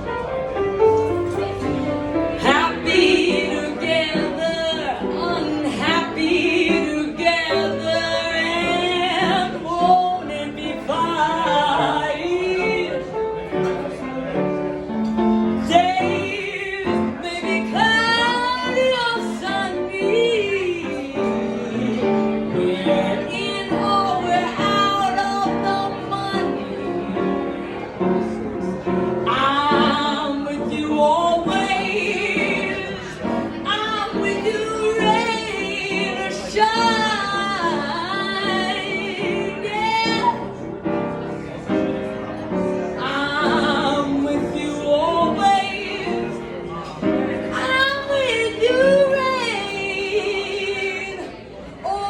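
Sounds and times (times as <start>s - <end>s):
person singing with vibrato: 15.6s - 27.2s, 29.3s - 40.5s.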